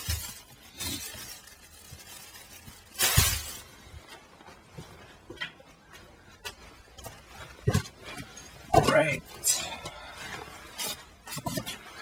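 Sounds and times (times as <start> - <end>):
plastic bottle crackling rattle: 0.0 - 3.8.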